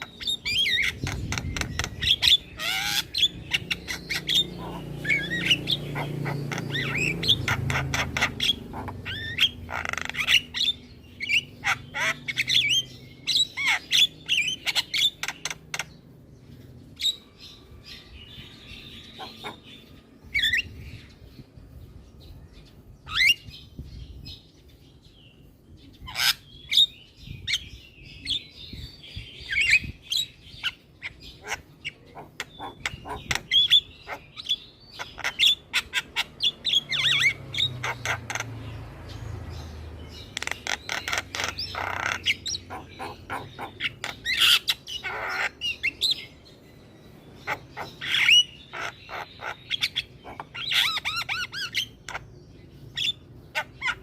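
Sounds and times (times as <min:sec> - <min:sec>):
bird squawking and whistling: 0:00.0 - 0:15.6, 0:32.2 - 0:38.5, 0:40.4 - 0:46.3, 0:47.4 - 0:52.2.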